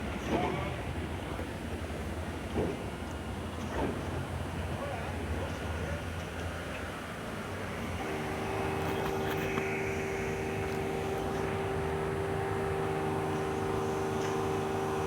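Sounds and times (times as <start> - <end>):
tram humming: 7.9 - 15.0.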